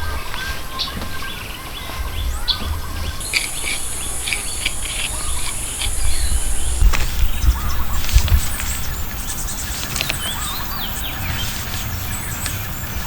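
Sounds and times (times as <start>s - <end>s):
small birds chirping: 0.0s - 13.0s
insect buzzing: 3.2s - 13.0s.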